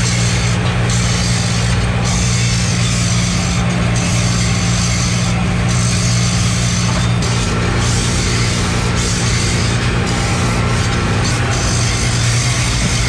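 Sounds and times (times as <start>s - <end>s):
machinery hiss: 0.0s - 13.0s
machinery humming: 0.0s - 13.0s.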